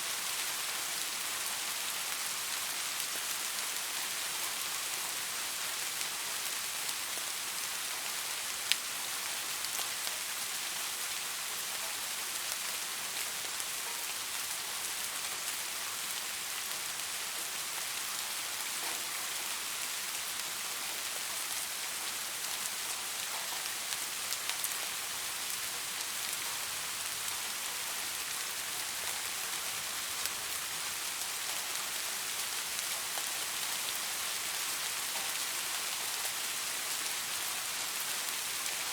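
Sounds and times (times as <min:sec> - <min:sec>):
light rain falling: 0:00.0 - 0:38.9.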